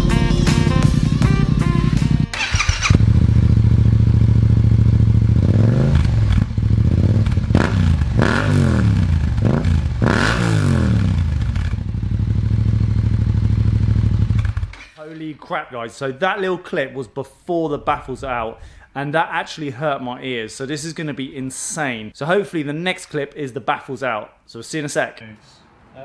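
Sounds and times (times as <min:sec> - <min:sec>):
motorcycle engine idling and revving: 0:00.7 - 0:14.8.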